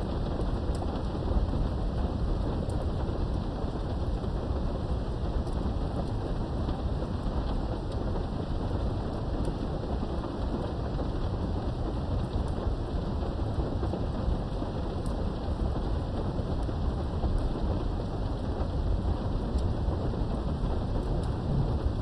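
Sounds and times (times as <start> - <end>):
rain through a window: 0.0 - 22.0
rain drop ticks: 0.1 - 22.0
low rumble: 16.7 - 22.0.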